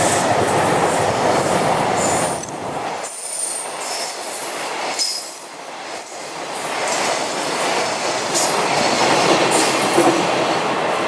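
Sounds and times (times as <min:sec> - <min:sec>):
high wheel squeals: 0:00.0 - 0:08.4
train wheels on rails: 0:00.0 - 0:11.0.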